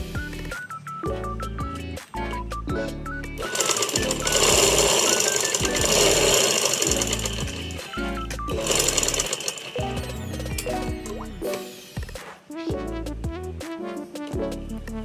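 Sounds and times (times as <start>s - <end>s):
background music: 0.0s - 15.0s
sewing machine clattering: 3.4s - 10.7s.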